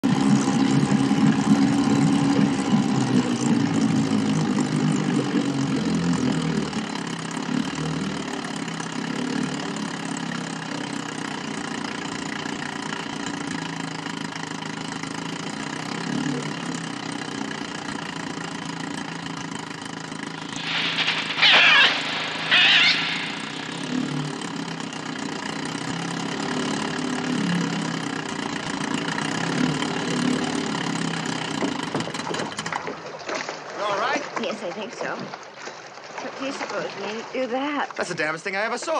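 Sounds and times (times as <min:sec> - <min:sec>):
motorboat engine running: 0:00.0 - 0:38.9
gull screeches: 0:20.4 - 0:24.3.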